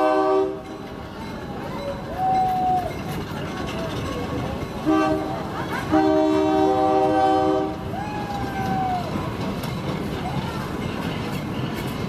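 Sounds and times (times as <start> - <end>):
train horn: 0.0 - 0.7, 4.8 - 7.9
train wheels rumbling and clattering: 0.0 - 12.0.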